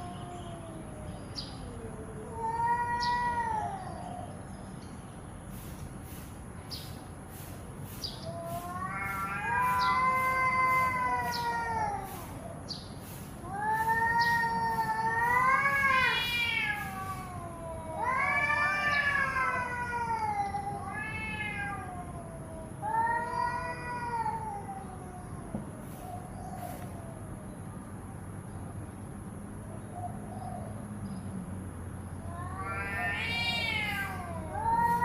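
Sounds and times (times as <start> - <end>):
cat yowling: 0.0 - 4.3, 8.2 - 12.6, 13.4 - 27.2, 32.2 - 35.0.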